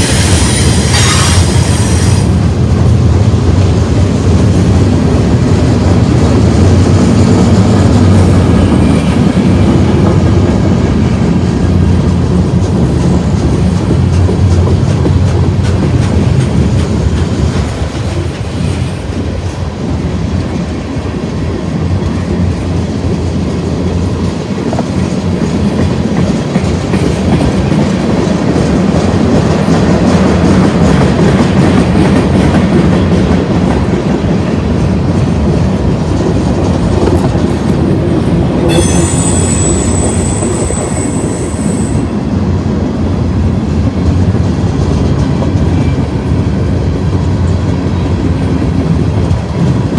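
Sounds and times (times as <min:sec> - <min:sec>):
high-pitched wheel squeal: 0:00.0 - 0:02.3, 0:38.7 - 0:42.1
freight train running on rails: 0:00.0 - 0:49.9.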